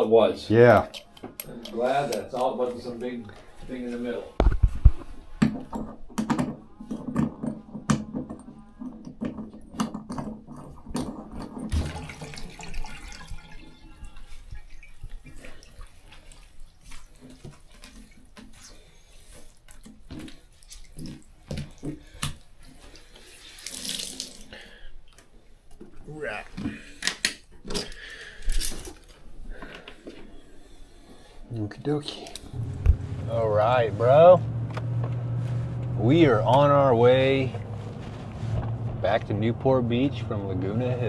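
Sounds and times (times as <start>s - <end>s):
clinks and knocks: 5.4s - 11.7s
water running from a tap: 11.7s - 13.7s, 23.5s - 24.4s.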